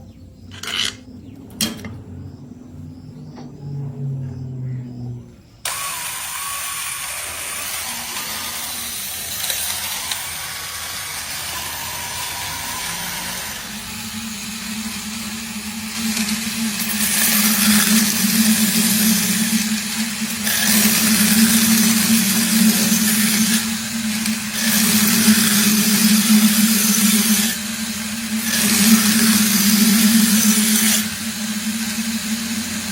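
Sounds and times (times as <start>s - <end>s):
knife grinding on sharpener: 0.5s - 1.1s, 5.7s - 27.6s
electric drill humming: 5.6s - 32.9s.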